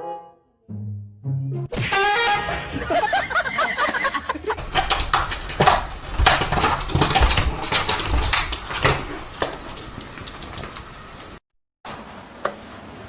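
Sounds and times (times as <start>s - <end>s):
knocks and clatter: 1.8s - 11.4s.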